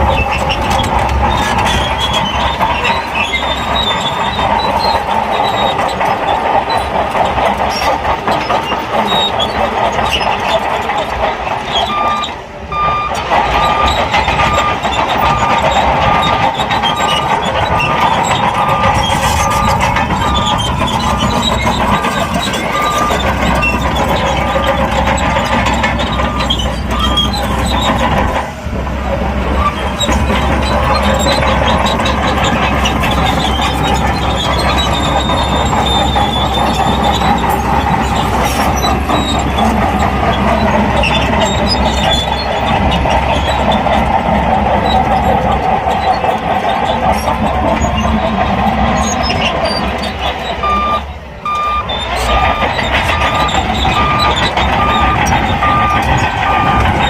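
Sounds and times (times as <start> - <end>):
bulldozer diesel engine under load: 0.0 - 57.0
steel tracks clanking and squealing: 0.0 - 57.0
steady beeping alarm: 11.9 - 23.6, 50.6 - 57.0.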